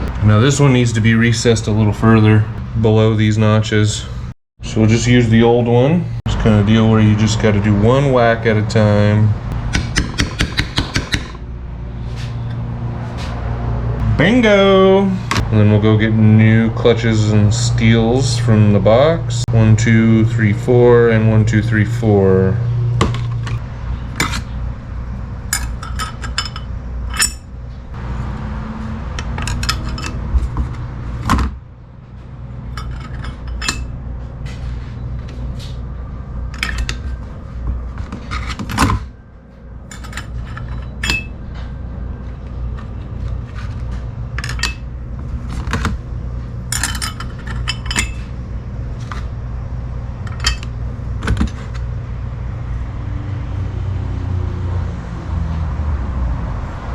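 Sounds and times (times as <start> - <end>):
steady low hum: 0.0 - 55.1
metal plates clinking and clattering: 25.5 - 27.5, 29.2 - 30.2, 32.7 - 34.0, 36.5 - 37.2, 39.9 - 41.4, 44.4 - 44.9, 46.7 - 48.3, 50.2 - 51.6.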